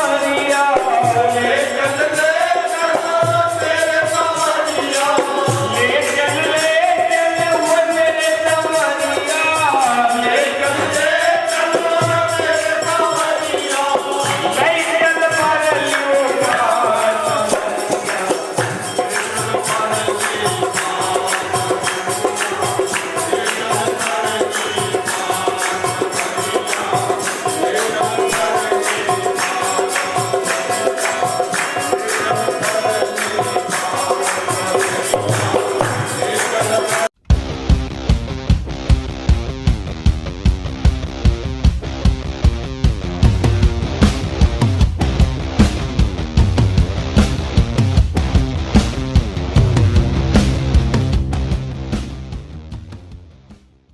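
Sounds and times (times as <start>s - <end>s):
person singing devotional song: 0.0s - 37.2s
jingling percussion and drum: 0.0s - 52.9s.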